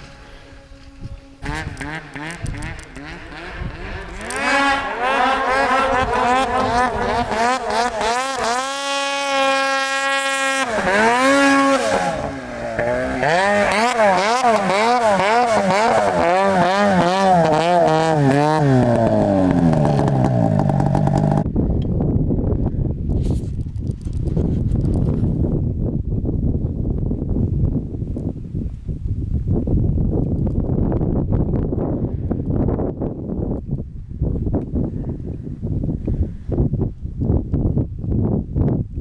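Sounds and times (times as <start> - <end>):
snowmobile engine revving: 0.0 - 21.5.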